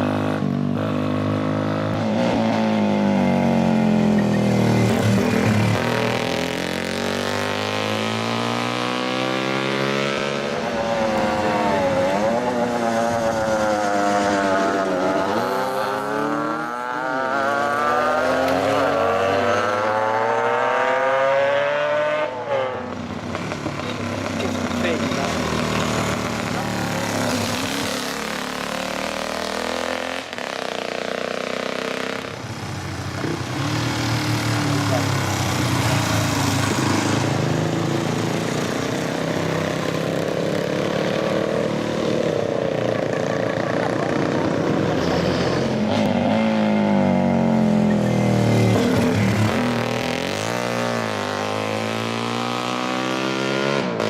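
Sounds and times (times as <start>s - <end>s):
motorcycle engines running: 0.0s - 54.0s.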